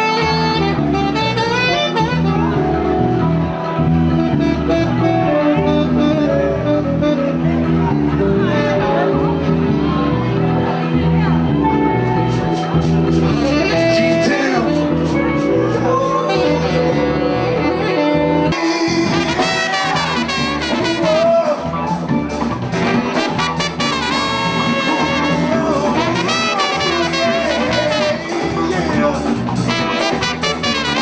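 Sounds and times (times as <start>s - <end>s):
bass: 0.0s - 31.0s
latin band horns: 0.0s - 31.0s
percussion groove: 12.2s - 15.5s, 18.5s - 31.0s.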